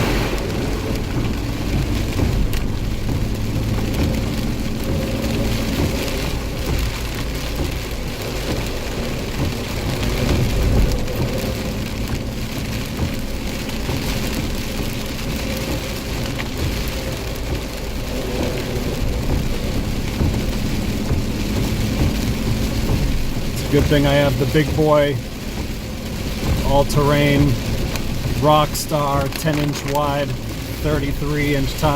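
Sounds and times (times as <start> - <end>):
heavy rain pouring: 0.0 - 31.9
low thunder rumbling: 0.0 - 31.9.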